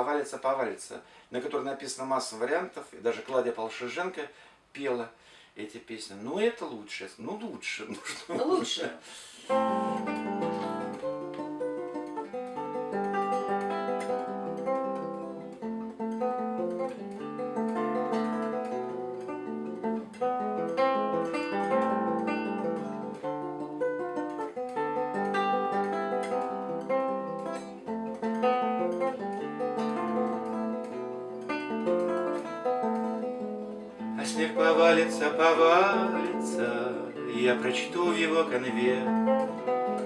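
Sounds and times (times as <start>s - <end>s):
acoustic guitar plucked notes: 9.5s - 40.0s.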